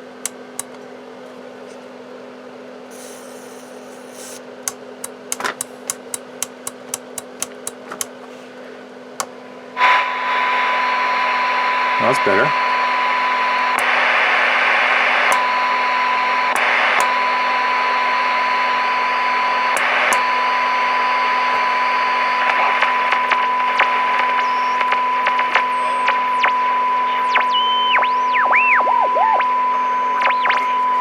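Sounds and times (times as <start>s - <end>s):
clicks: 0.1s - 0.9s, 4.6s - 8.1s, 13.7s - 14.0s, 15.3s - 15.5s, 16.5s - 17.2s, 19.8s - 20.3s
bursts of static: 9.8s - 31.0s
radio test tone: 9.8s - 31.0s.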